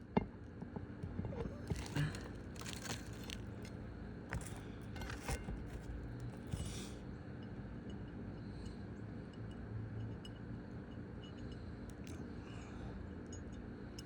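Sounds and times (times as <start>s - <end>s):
metal tool scraping shingles: 1.4s - 7.0s.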